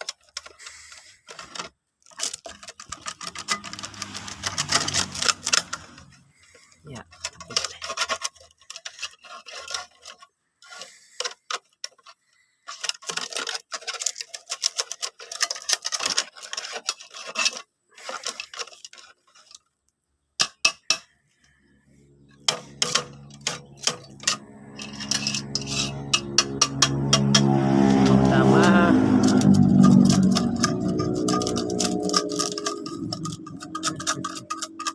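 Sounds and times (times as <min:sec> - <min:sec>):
parts clinking and rattling: 0:00.0 - 0:34.9
grating machine motor humming: 0:22.4 - 0:34.9.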